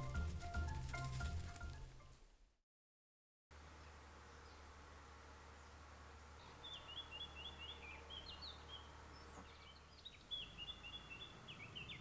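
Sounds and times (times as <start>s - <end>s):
songbird chirping: 3.6s - 12.0s.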